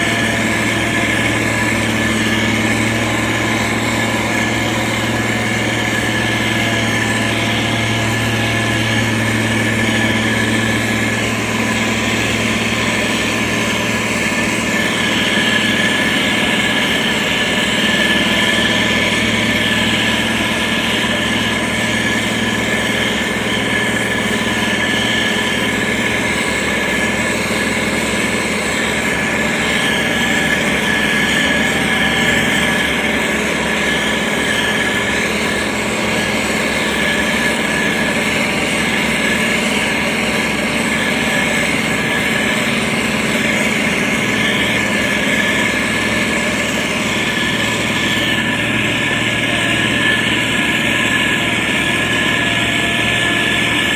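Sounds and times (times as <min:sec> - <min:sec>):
diesel engine running: 0:00.0 - 0:53.9
high-pitched whine: 0:00.0 - 0:53.9.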